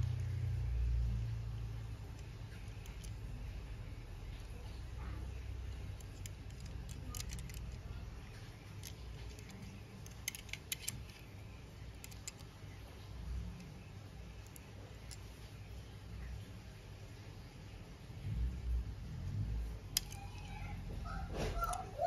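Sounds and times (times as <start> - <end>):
low steady rumble: 0.0 - 22.0
light clicks and taps handling packaging: 5.8 - 11.3.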